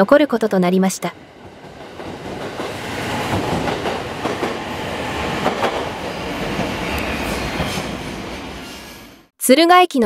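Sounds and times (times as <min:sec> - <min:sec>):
train wheels clacking over joints: 0:01.6 - 0:04.6.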